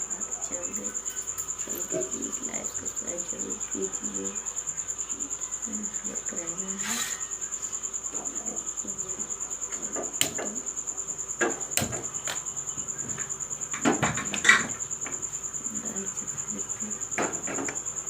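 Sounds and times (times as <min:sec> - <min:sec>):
cricket chirping trill: 0:00.0 - 0:18.0
knocks and clatters: 0:13.0 - 0:15.2.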